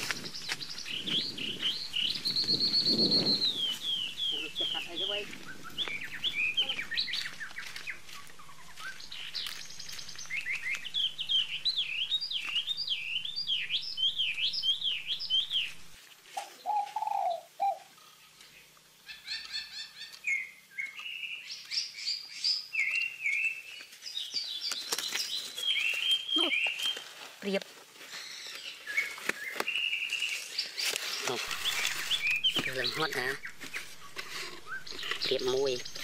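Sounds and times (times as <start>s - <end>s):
birds chirping and singing: 0.0s - 27.2s, 28.1s - 36.0s.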